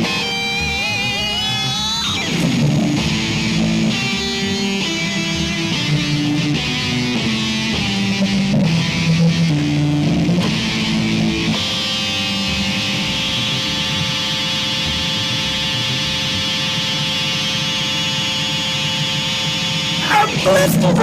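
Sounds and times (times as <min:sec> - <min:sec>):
sustained guitar drone: 0:00.0 - 0:21.0.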